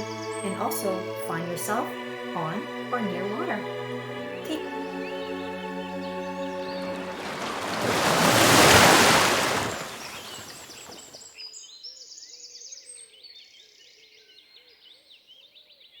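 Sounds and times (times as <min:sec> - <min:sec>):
birds chirping and singing: 0:04.4 - 0:11.2
loud rushing surge of noise: 0:06.9 - 0:11.0.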